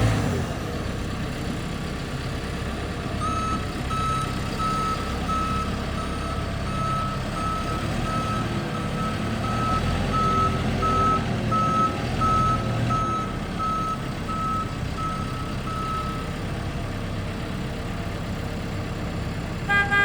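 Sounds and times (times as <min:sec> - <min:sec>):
reversing alarm beeping: 0:03.2 - 0:16.2.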